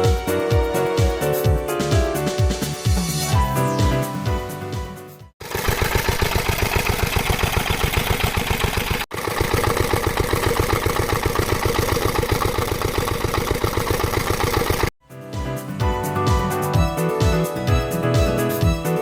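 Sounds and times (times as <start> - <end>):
music: 0.0 - 5.4, 15.0 - 19.0
stationary diesel engine running: 5.4 - 15.0.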